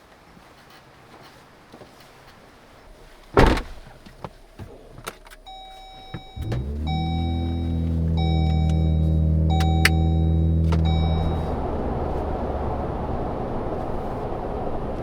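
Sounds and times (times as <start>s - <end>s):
truck door shutting: 3.3s - 11.6s
engine starting and idling: 4.7s - 12.2s
dashboard chime: 5.5s - 11.5s.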